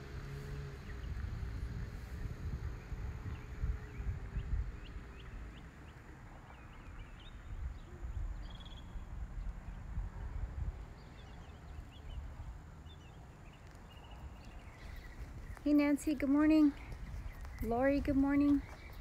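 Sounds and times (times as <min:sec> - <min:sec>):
low outdoor rumble: 0:00.0 - 0:19.0
birds chirping: 0:02.1 - 0:19.0.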